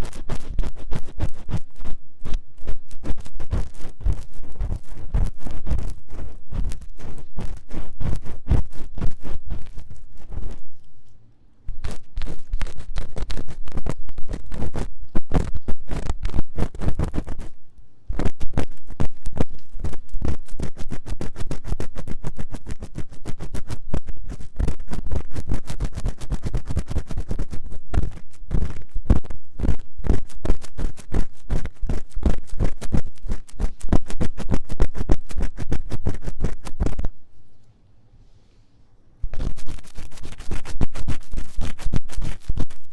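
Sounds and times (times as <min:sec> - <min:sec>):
tool scratching microphone ear: 0:00.0 - 0:37.2, 0:39.2 - 0:42.9.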